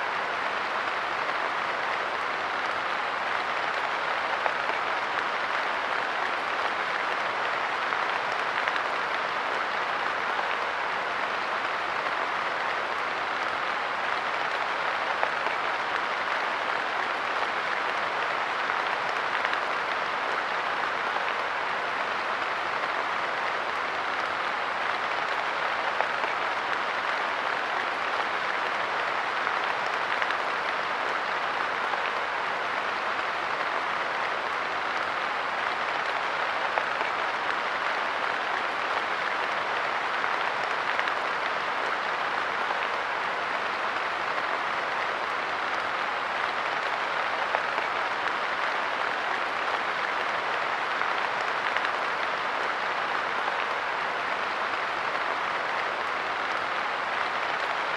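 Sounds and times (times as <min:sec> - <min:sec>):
light rain on a bench: 0:00.0 - 0:57.9.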